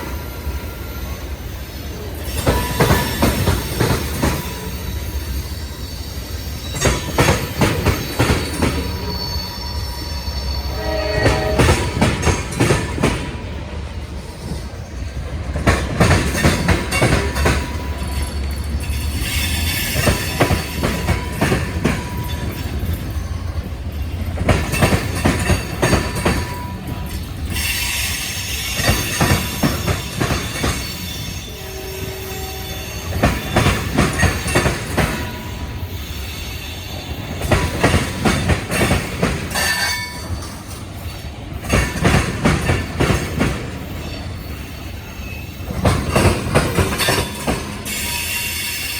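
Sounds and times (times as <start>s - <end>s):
low train rumble: 0.0s - 48.9s
high-pitched wheel squeal: 0.2s - 12.4s, 30.4s - 37.4s, 47.0s - 48.9s
train wheels clicking over rail joints: 1.1s - 9.6s, 11.2s - 31.5s, 32.9s - 48.9s.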